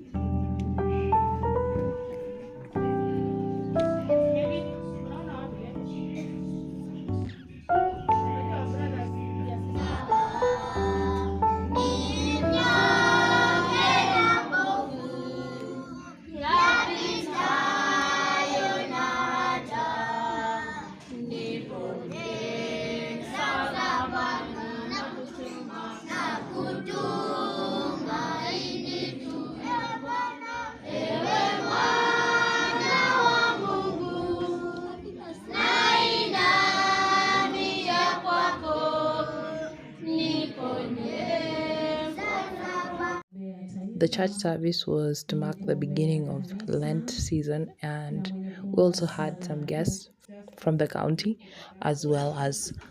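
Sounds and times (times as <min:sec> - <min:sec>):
choir singing a hymn: 0:08.4 - 0:43.9.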